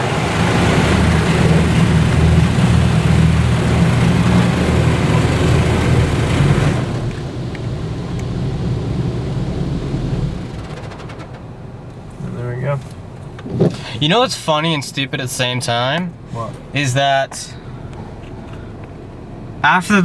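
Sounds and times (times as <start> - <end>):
steady motor hum: 0.0 - 11.0
car wash rushing hiss: 0.0 - 19.8.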